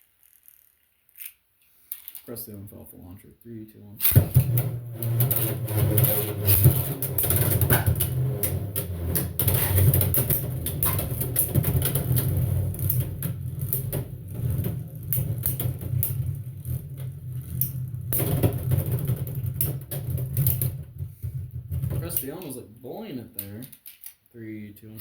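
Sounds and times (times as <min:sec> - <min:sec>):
spinning tops whirring: 0:04.0 - 0:20.8.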